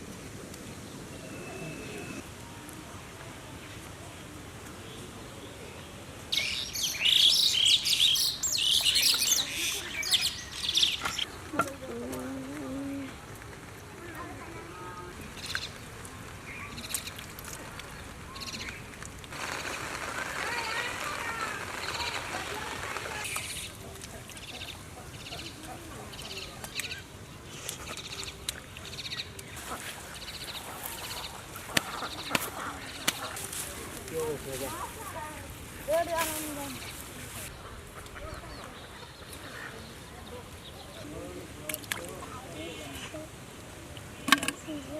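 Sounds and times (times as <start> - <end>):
bird chirping and twittering: 6.3 - 11.4.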